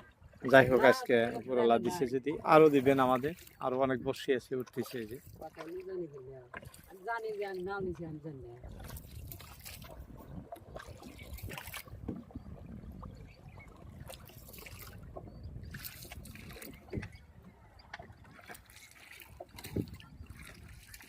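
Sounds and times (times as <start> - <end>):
water lapping around boat: 0.0 - 21.0
wind rumble on microphone: 7.9 - 18.5, 19.4 - 21.0.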